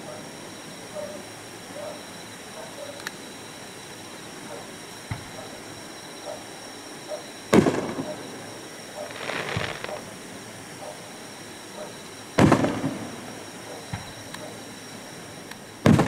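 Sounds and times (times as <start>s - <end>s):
firework booms: 7.5s - 8.4s, 9.0s - 10.1s, 12.4s - 13.3s
firework crackling: 7.5s - 10.4s, 12.4s - 14.1s.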